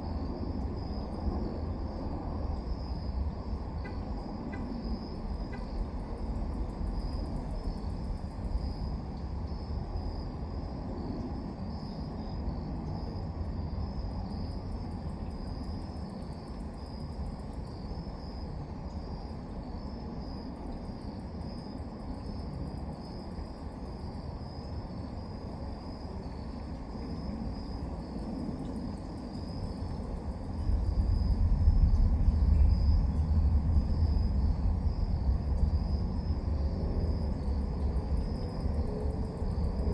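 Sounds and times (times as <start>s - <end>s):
crickets chirping: 0.0s - 39.9s
low rumble: 30.3s - 39.7s.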